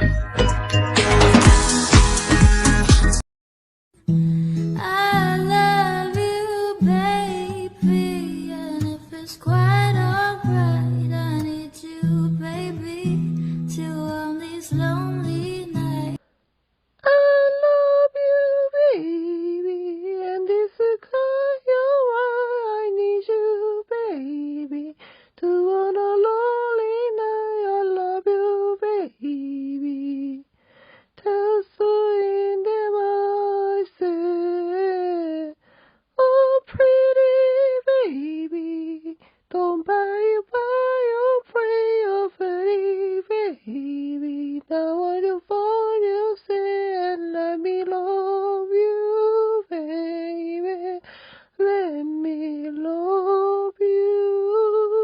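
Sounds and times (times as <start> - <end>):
breaths: 4.3 - 4.7, 13.3 - 13.7, 25.0 - 25.4, 30.5 - 31.2, 35.6 - 36.2, 39.2 - 39.5, 51.0 - 51.6.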